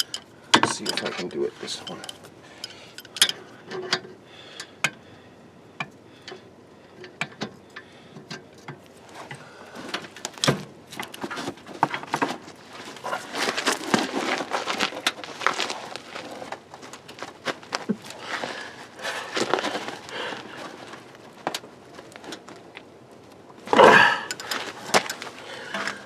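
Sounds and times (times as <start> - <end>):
hand tools clicking on metal: 0.0 - 5.0, 23.8 - 26.0.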